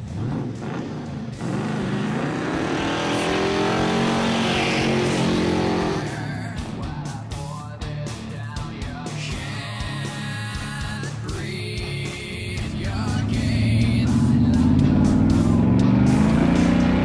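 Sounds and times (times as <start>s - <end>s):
car engine accelerating: 0.0s - 6.8s, 12.5s - 17.0s.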